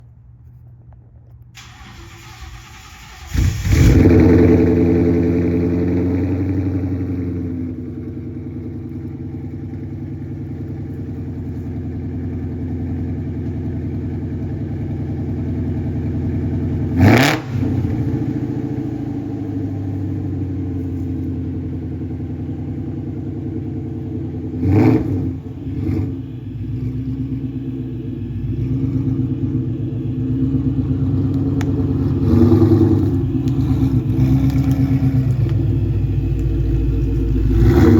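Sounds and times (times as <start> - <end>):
car engine starting and idling: 0.0 - 37.9
engine revving: 1.6 - 8.2, 16.8 - 21.1, 23.9 - 37.9.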